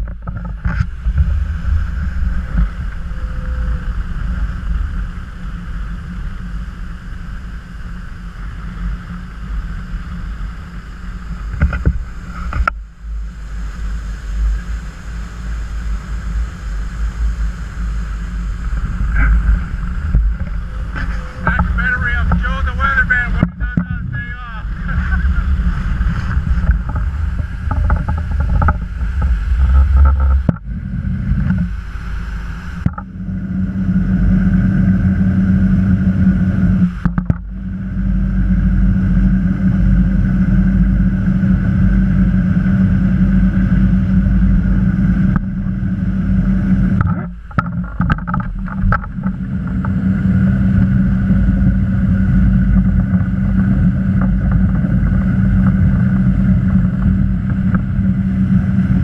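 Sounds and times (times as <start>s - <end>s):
motorboat engine running: 0.0s - 59.0s
wind and water noise: 0.0s - 59.0s.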